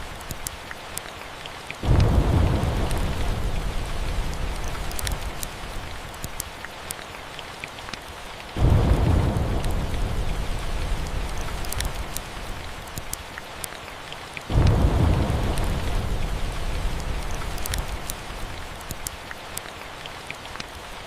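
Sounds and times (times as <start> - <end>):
steady rain: 0.0 - 21.0
deep thunder rumbles: 1.8 - 6.1, 8.6 - 13.0, 14.5 - 18.9.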